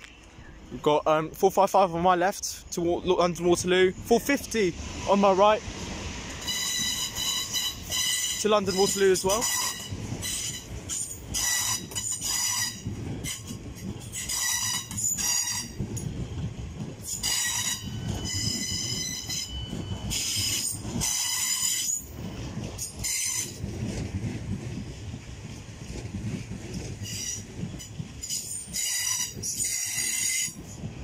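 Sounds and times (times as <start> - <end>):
electric train rumbling past: 0.2 - 31.0
wheels squealing high-pitched: 6.4 - 13.5, 17.0 - 22.1, 27.0 - 30.6.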